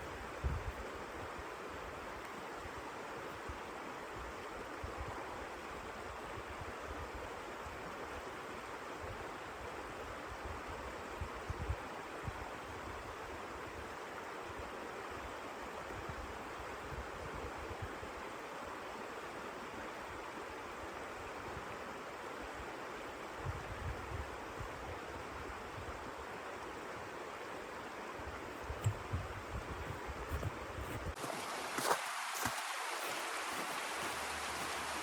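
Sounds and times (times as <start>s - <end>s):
blizzard wind hissing and buffeting: 27.0s - 35.0s.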